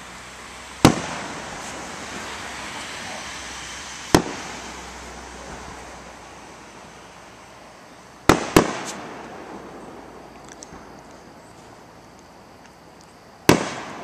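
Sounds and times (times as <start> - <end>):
steady background hiss: 0.0 - 14.0
fireworks bangs echoing: 0.7 - 6.7, 8.2 - 12.0, 13.4 - 14.0.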